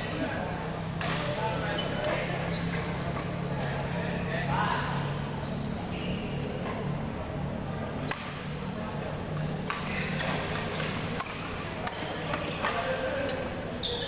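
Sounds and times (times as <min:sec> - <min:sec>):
badminton racket hitting shuttlecock: 0:09.6 - 0:13.0.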